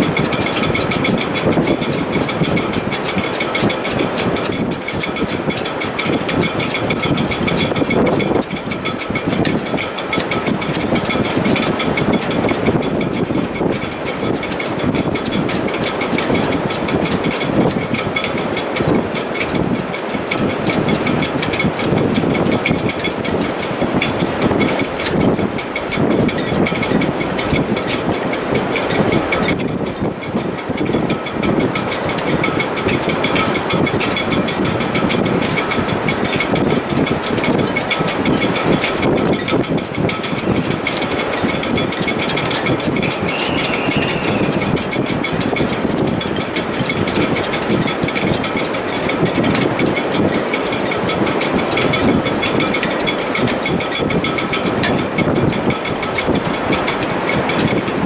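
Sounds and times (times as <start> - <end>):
strong wind rushing: 0.0 - 52.7
rigging rattling: 0.0 - 58.0
wind whistling in wires: 0.0 - 58.0
faint whistling tones: 43.0 - 44.8.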